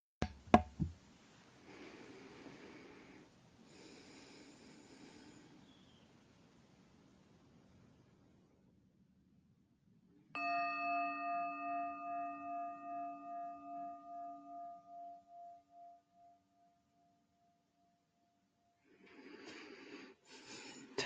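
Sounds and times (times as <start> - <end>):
singing bowl ringing: 10.4 - 17.7.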